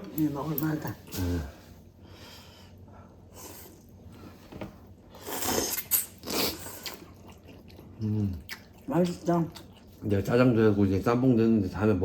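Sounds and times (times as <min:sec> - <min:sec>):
person slurping noodle soup: 0:05.2 - 0:07.1.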